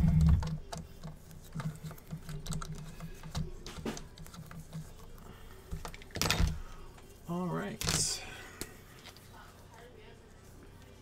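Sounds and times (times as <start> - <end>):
small tools clicking and tapping: 0.0 - 7.1.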